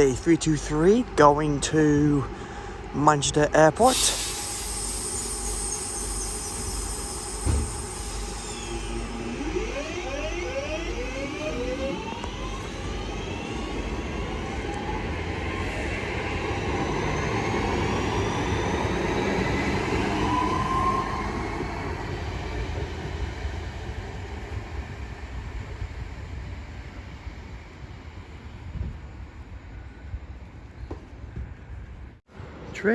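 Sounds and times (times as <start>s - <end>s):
train wheels rumbling on rails: 0.0s - 32.7s
electric motors whining: 4.2s - 15.7s.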